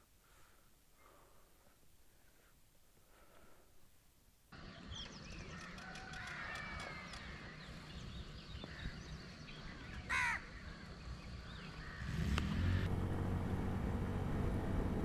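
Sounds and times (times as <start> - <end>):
birds chirping and calling: 4.6 - 12.4
loud harsh bird call: 9.8 - 11.0.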